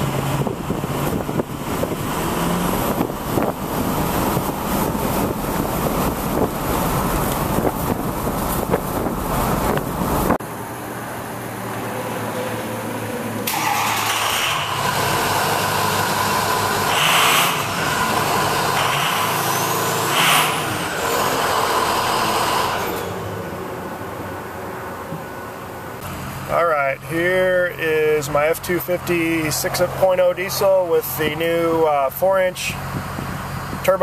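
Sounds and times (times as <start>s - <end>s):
engine revving: 0.0s - 10.4s, 11.2s - 23.4s
wind buffeting microphone: 0.0s - 10.4s
diesel truck engine running: 0.0s - 34.0s.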